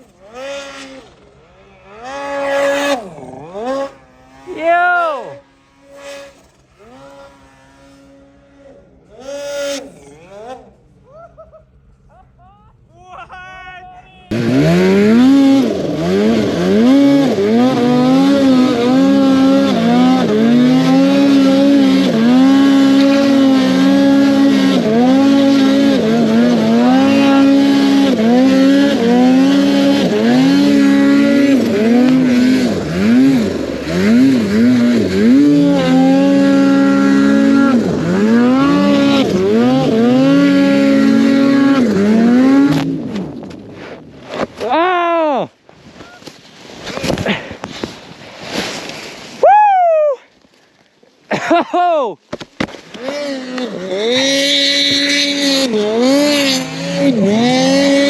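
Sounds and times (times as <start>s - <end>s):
snowmobile engine revving: 0.0s - 11.5s, 14.2s - 45.5s, 52.8s - 58.0s.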